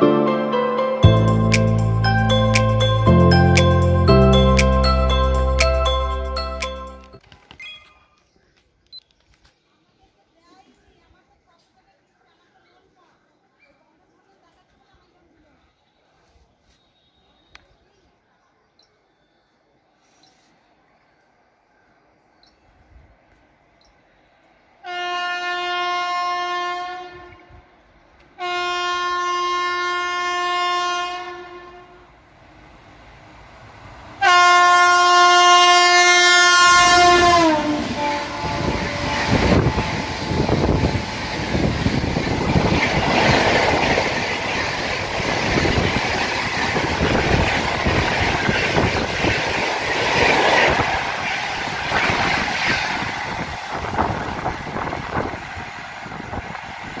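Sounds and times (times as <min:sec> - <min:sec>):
train rushing past: 0:01.0 - 0:07.1, 0:32.2 - 0:57.0
train horn blasts: 0:24.8 - 0:27.7, 0:28.4 - 0:32.1, 0:34.2 - 0:41.2.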